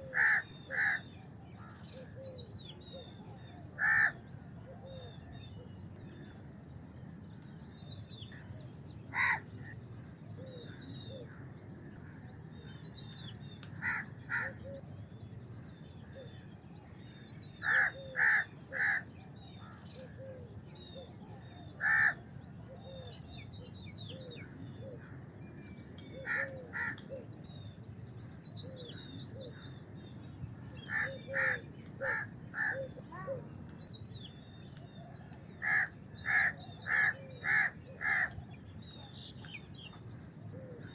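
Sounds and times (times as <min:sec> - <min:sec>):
crows cawing: 0:00.1 - 0:01.0, 0:03.8 - 0:04.2, 0:09.1 - 0:09.5, 0:13.8 - 0:14.7, 0:17.6 - 0:19.1, 0:21.8 - 0:22.2, 0:26.2 - 0:27.1, 0:30.8 - 0:32.9, 0:35.6 - 0:38.4
small birds chirping: 0:05.0 - 0:40.9.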